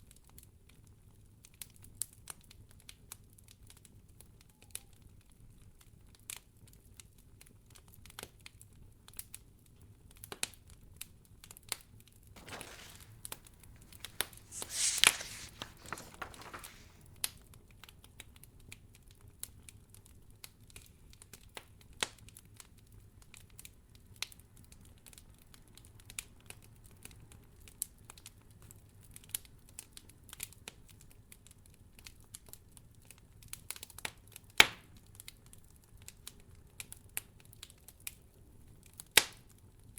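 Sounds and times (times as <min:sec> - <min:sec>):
wood fire crackling: 0:12.4 - 0:17.3.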